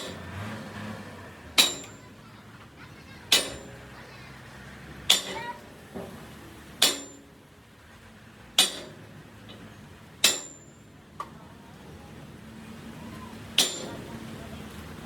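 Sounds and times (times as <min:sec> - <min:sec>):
hammer striking metal: 0:01.6 - 0:02.1, 0:03.3 - 0:03.9, 0:05.1 - 0:05.6, 0:06.8 - 0:07.4, 0:08.6 - 0:09.1, 0:10.2 - 0:10.8, 0:13.6 - 0:14.1.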